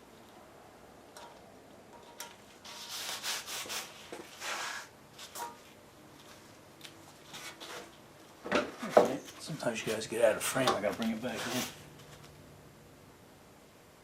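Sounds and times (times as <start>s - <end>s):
scraping body filler: 11.2s - 11.8s.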